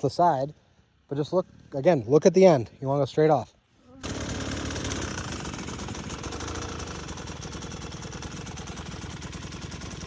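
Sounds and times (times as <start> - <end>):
dirt bike engine idling: 4.0 - 10.0.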